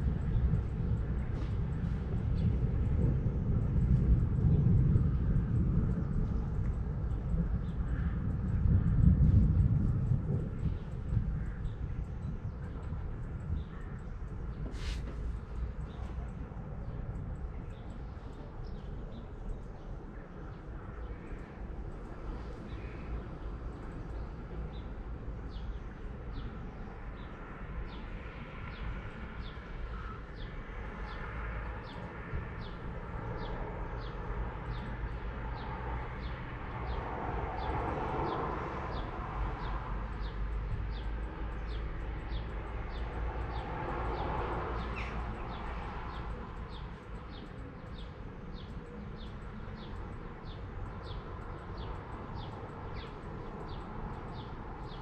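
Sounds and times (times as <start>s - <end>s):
low outdoor rumble: 0.0s - 55.0s.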